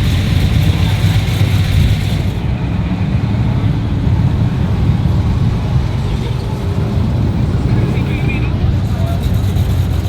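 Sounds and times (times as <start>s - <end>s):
car engine running: 0.0s - 2.5s.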